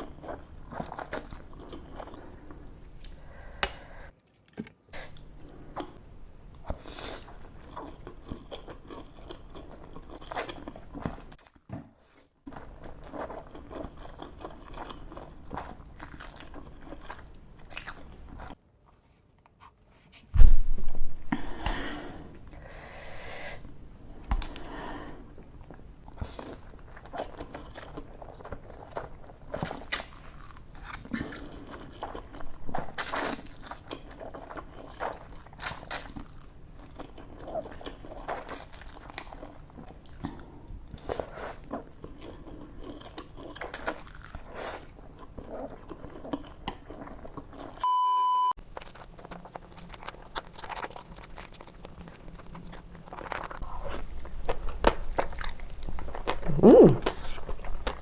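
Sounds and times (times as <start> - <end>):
chewing and biting food: 6.6 - 11.7, 12.5 - 18.6, 25.6 - 47.8, 48.6 - 58.0
electronic beep: 47.8 - 48.6.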